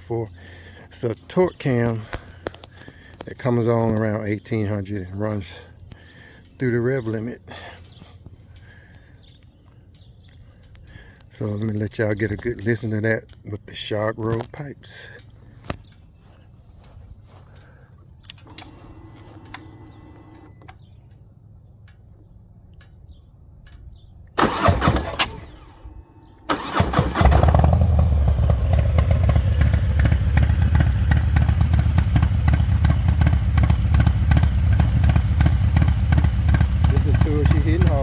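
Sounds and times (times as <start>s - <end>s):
motorcycle engine cranking: 18.2s - 21.0s, 24.4s - 38.0s
motorcycle engine idling: 25.8s - 38.0s.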